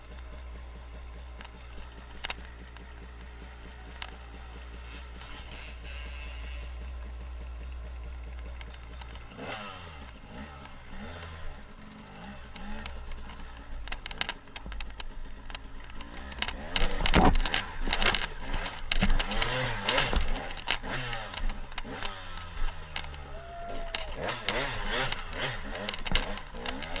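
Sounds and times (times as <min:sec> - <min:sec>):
dirt bike engine revving: 0:00.0 - 0:27.0
sharp knocks and bumps: 0:12.5 - 0:23.2, 0:23.9 - 0:27.0.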